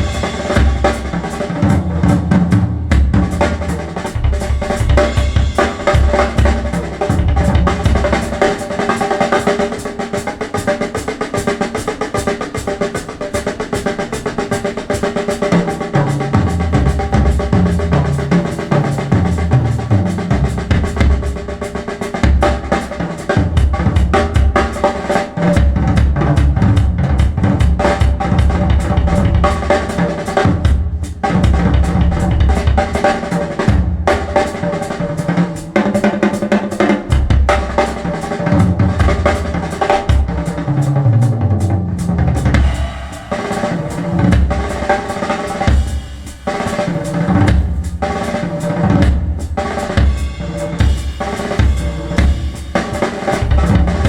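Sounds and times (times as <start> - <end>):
drum-heavy music over speakers: 0.0 - 54.0
kick and snare drum hits: 50.8 - 54.0.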